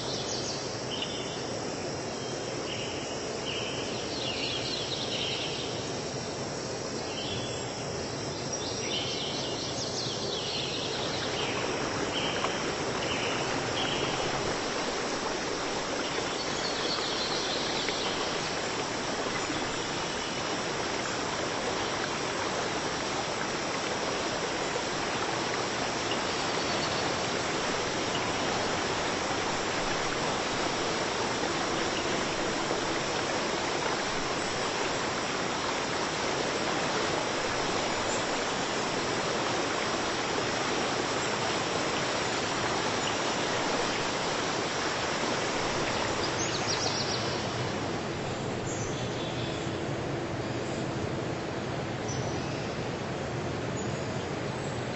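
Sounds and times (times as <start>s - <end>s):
insect chirps: 0.0s - 47.6s
running water rushing: 0.0s - 54.9s.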